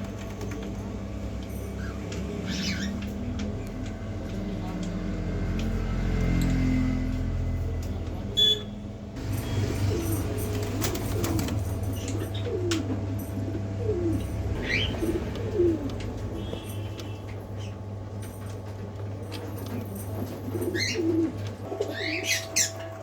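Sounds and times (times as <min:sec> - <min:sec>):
steady low hum: 0:00.0 - 0:23.0
birds calling low falling notes: 0:09.2 - 0:23.0
high rising bird chirp: 0:14.0 - 0:15.6.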